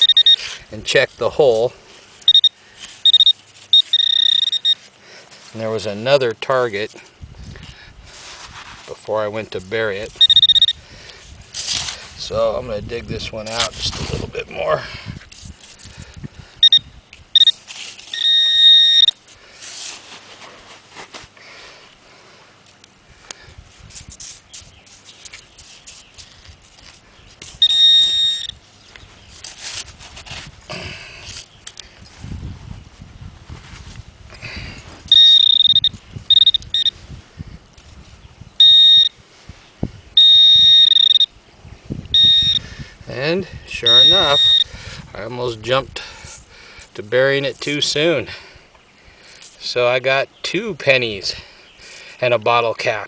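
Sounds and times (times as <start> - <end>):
metal detector beeps and tone: 0.0 - 0.5, 2.2 - 4.8, 10.1 - 10.8, 16.6 - 19.2, 27.5 - 28.6, 35.1 - 37.0, 38.6 - 39.2, 40.2 - 41.3, 42.1 - 42.6, 43.7 - 44.7
digging in sand: 0.0 - 7.0, 8.1 - 12.7, 13.3 - 14.6, 15.2 - 21.9, 23.7 - 32.1, 33.6 - 37.0, 42.1 - 44.7
sand being dug: 8.1 - 10.7, 17.4 - 21.4, 29.2 - 31.5, 43.7 - 44.6.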